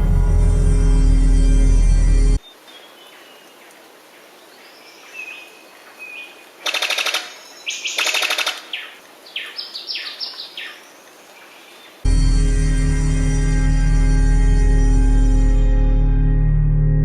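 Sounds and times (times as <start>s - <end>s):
bird calls: 2.4s - 12.0s.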